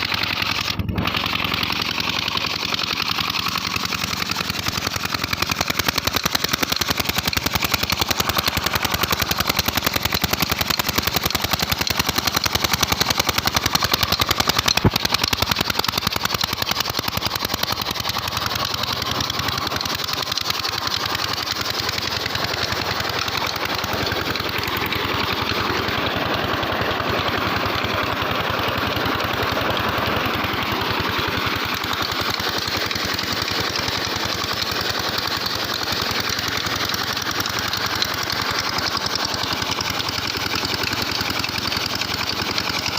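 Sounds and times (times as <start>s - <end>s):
diesel engine running steadily: 0.0s - 42.9s
sharp click: 14.6s - 15.2s.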